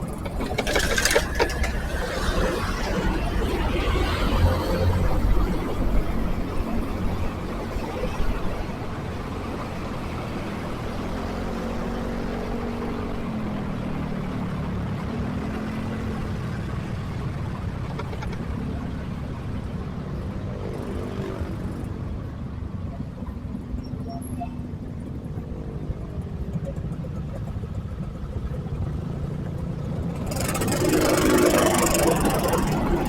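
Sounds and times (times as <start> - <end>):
motorcycle engine revving: 0.0 - 7.5, 25.0 - 33.0
road and traffic noise: 0.0 - 33.0.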